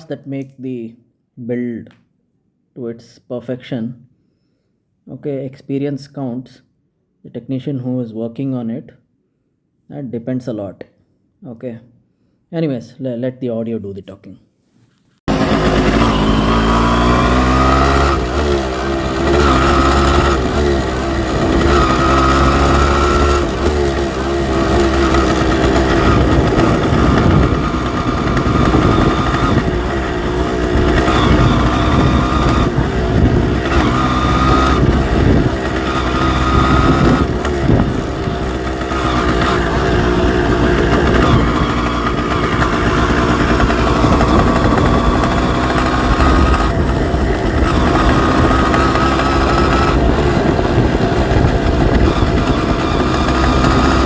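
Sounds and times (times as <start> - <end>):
motorcycle engine revving: 15.3 - 54.0.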